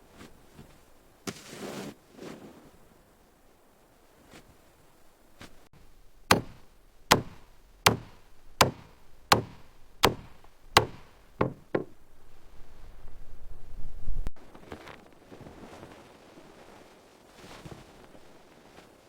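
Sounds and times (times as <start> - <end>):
hand tool striking: 5.8 - 11.9.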